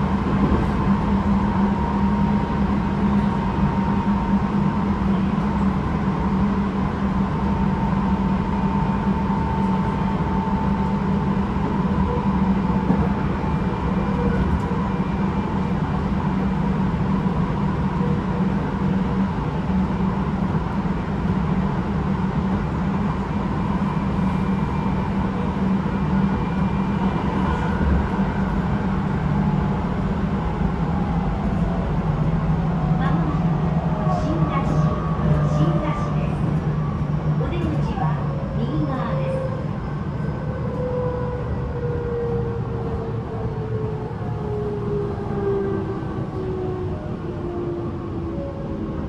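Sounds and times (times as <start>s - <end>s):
train wheels on rail: 0.0s - 32.4s.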